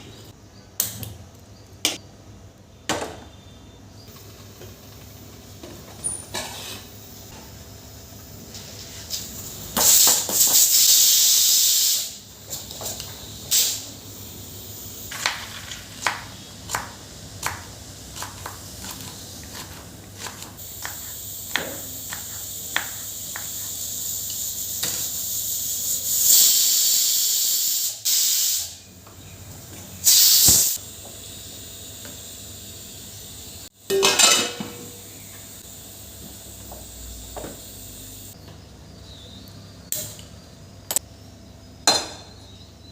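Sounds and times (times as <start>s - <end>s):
food hissing in a pan: 8.0s - 12.7s, 13.4s - 19.4s, 20.6s - 28.8s, 30.0s - 33.7s, 34.9s - 38.4s.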